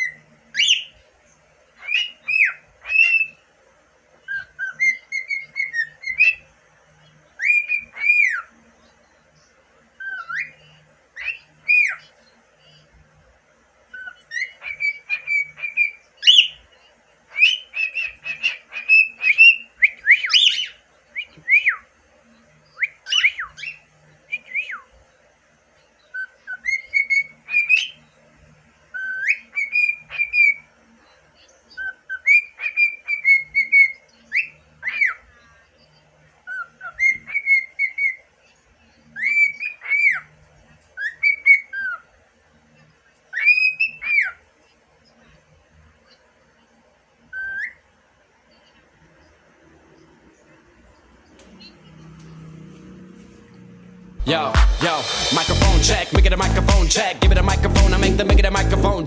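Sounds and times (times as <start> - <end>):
cockatiel whistling: 4.3 - 6.4, 7.4 - 8.5, 13.9 - 16.6, 22.8 - 24.9, 26.1 - 28.0, 28.9 - 30.6, 36.5 - 38.2, 39.2 - 40.3, 47.3 - 47.8.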